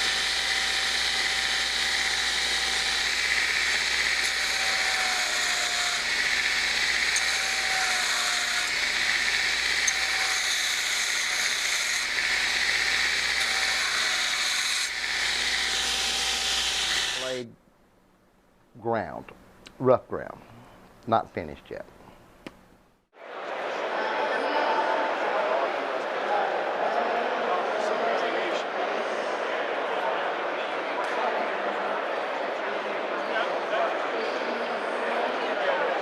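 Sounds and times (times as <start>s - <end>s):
belt grinder hissing on steel: 0.0s - 17.4s.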